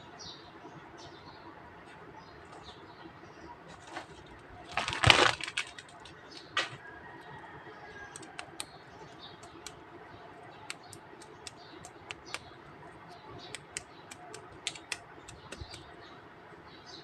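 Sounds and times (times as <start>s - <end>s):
plastic toy figures clicking: 4.7s - 6.7s, 8.1s - 8.7s, 10.7s - 12.5s, 13.5s - 15.9s.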